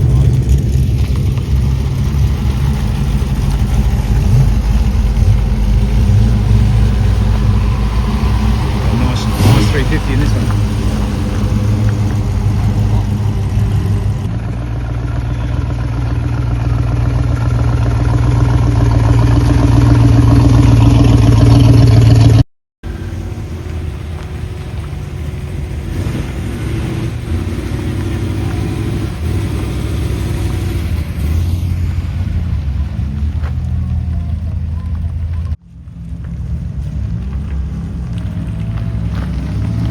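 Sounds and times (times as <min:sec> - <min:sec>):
car engines passing: 0:00.0 - 0:39.9.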